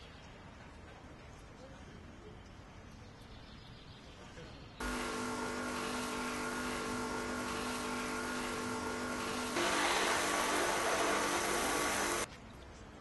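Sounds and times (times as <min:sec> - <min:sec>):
pressure cleaner motor hum: 0:04.8 - 0:12.3
water spraying hiss: 0:04.8 - 0:12.3.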